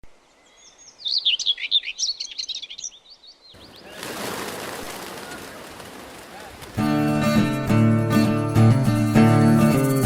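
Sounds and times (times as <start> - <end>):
songbird chirping and trilling: 0.1 - 4.1.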